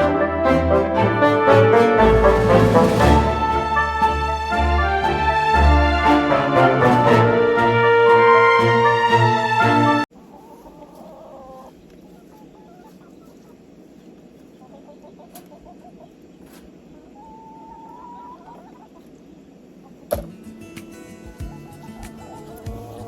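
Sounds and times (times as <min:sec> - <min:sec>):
chickens clucking and calling: 0:03.3 - 0:07.5, 0:08.8 - 0:20.2, 0:21.4 - 0:23.0.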